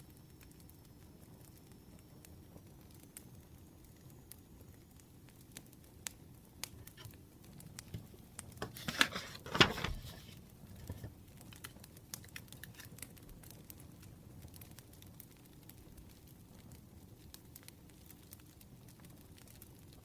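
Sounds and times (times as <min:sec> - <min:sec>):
rustling: 0:07.8 - 0:13.0.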